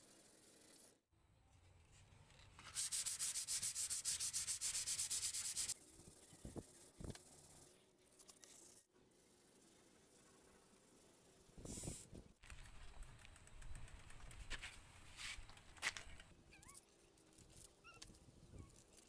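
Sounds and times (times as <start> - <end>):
sandpaper strokes: 2.6 - 7.8, 14.5 - 15.5.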